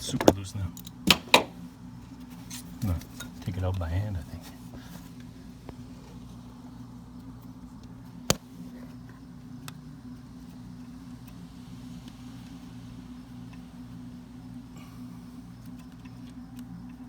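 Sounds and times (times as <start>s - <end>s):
low mechanical hum: 0.0s - 17.0s
faint ticks: 7.2s - 17.0s.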